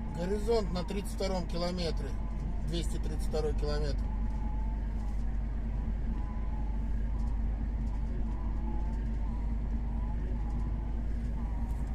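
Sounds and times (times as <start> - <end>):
road noise: 0.0 - 6.0
constant hum: 0.0 - 11.9
faint wavering whistling tones: 0.0 - 11.9
vehicle engine drone: 0.0 - 11.9.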